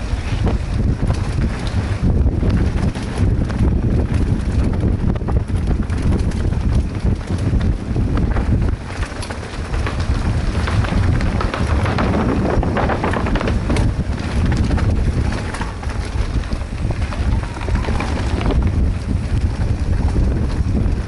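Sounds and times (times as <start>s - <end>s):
bike rattling on dirt trail: 0.0s - 21.0s
wind buffeting microphone: 0.0s - 21.0s.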